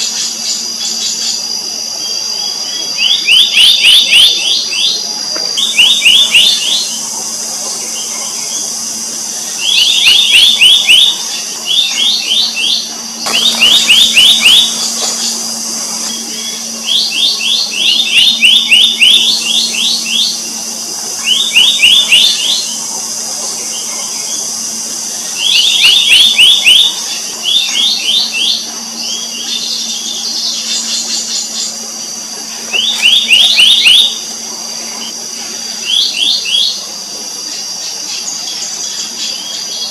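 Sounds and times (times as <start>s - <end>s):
high-pitched drone: 0.0s - 38.1s
bird calling in sharp high notes: 5.6s - 23.0s.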